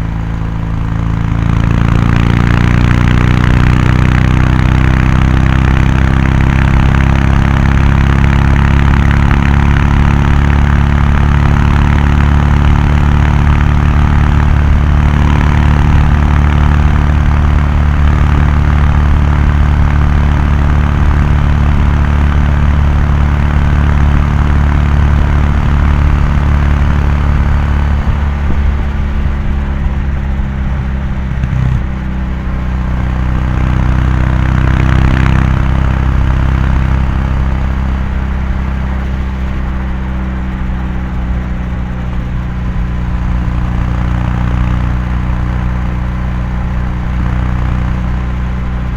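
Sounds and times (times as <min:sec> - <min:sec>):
motorcycle engine cruising: 0:00.0 - 0:48.9.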